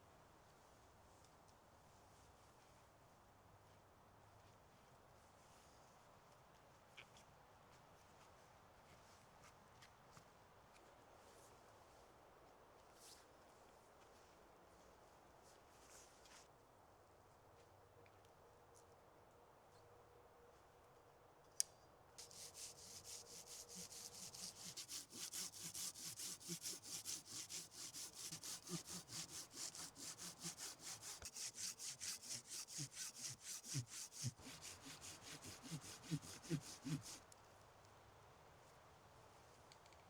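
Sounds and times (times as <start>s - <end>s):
hand saw cutting wood: 22.2s - 37.3s.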